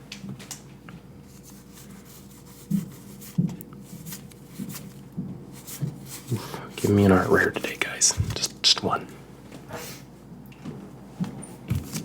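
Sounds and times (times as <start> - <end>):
cards rubbing together: 1.3 - 8.8.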